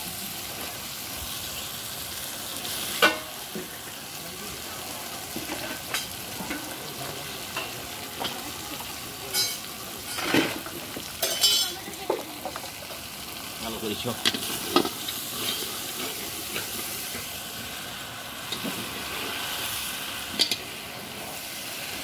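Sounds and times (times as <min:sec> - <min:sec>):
paste sizzling in oil: 0:00.0 - 0:22.0
spatula scraping a metal pan: 0:14.4 - 0:17.0.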